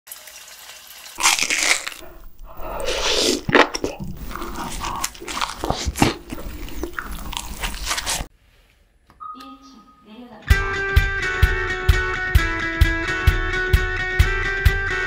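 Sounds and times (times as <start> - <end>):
crisp crunching bites: 1.2 - 8.3
wet chewing: 1.2 - 8.3.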